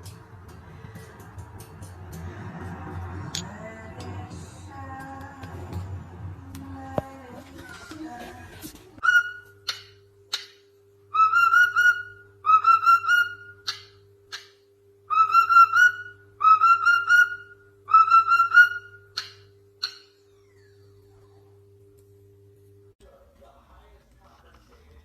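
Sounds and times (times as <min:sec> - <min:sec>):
parrot whistling a tune: 0:09.0 - 0:09.9, 0:11.1 - 0:13.9, 0:15.1 - 0:20.7
parrot chirps: 0:09.0 - 0:20.8.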